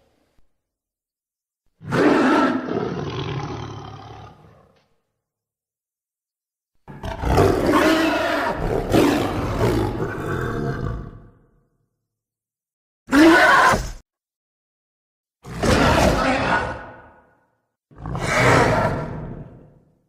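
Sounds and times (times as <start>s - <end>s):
deep creature roars: 1.8s - 4.8s, 6.9s - 11.6s, 15.4s - 17.2s, 17.9s - 19.8s.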